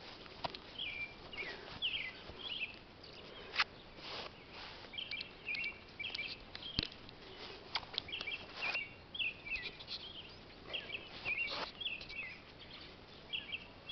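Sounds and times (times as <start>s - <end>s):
small birds chirping: 0.0s - 13.9s
brief rustles: 3.2s - 8.9s, 11.1s - 12.2s.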